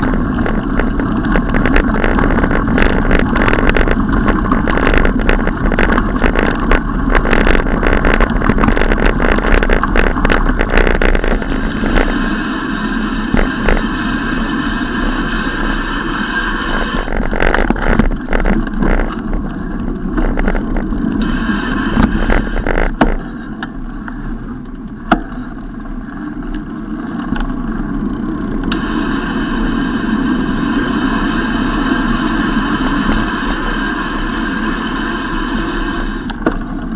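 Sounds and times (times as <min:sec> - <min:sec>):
bicycle knocks and rattles: 0:00.0 - 0:12.2, 0:17.0 - 0:19.5, 0:22.2 - 0:23.8
wind and tyres rumbling: 0:00.0 - 0:36.9.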